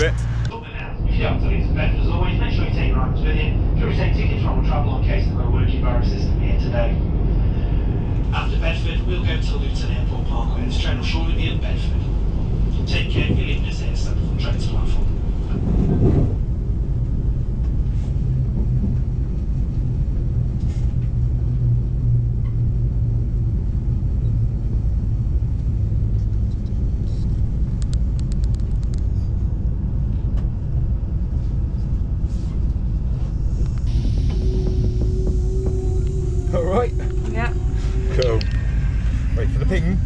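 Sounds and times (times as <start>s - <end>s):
steady tone: 0.0s - 0.6s, 33.0s - 40.0s
low hum: 0.0s - 12.8s, 16.4s - 40.0s
train rumble inside carriage: 0.0s - 40.0s.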